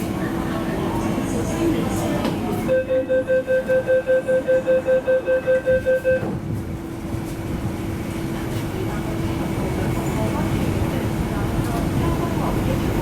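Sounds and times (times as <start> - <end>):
train hum: 0.0 - 13.0
rapid door warning beeps: 2.7 - 6.3.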